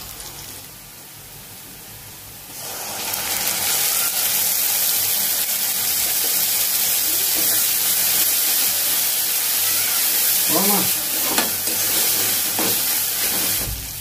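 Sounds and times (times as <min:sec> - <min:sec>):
onions frying in oil: 0:00.0 - 0:14.0
spice paste sizzling in hot oil: 0:00.0 - 0:14.0.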